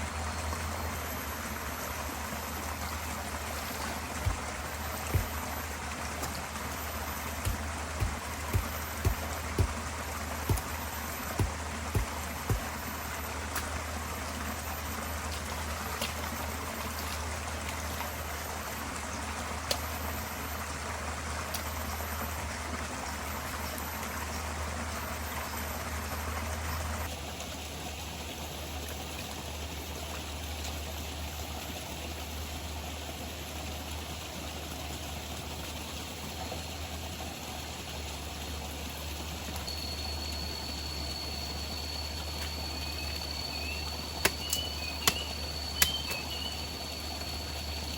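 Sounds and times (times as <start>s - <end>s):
stream rushing water: 0.0s - 47.9s
high insect call: 39.7s - 47.9s.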